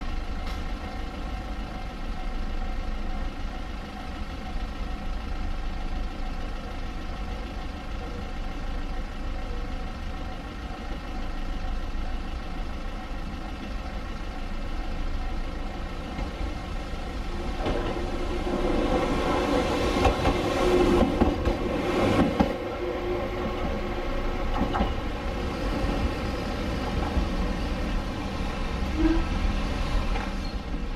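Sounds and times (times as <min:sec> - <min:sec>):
electric train humming: 0:00.0 - 0:30.9.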